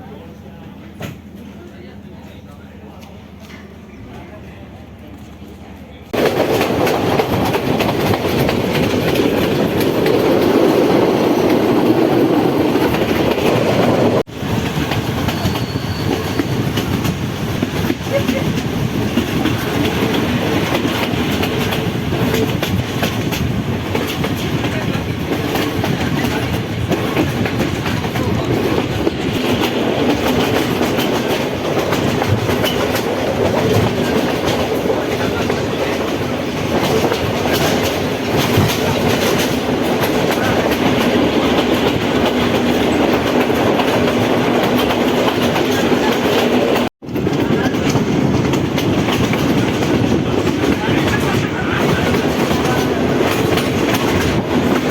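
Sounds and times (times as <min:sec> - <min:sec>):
train wheels rumbling on rails: 0:00.0 - 0:54.9
rail joint clicks: 0:00.4 - 0:54.9.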